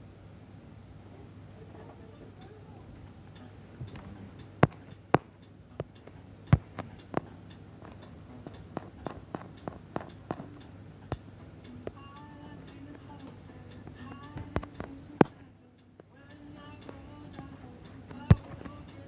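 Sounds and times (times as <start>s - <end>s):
low steady hum: 0.0s - 19.0s
sharp clicks and taps: 3.3s - 19.0s.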